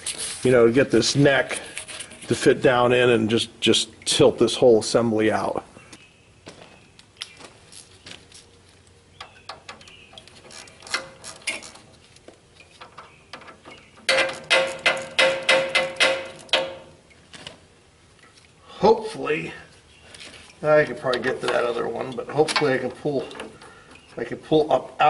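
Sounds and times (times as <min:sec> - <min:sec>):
hand tools clicking and knocking: 0:09.2 - 0:17.0, 0:21.0 - 0:24.2
sharp metallic clicks ringing: 0:12.8 - 0:17.2.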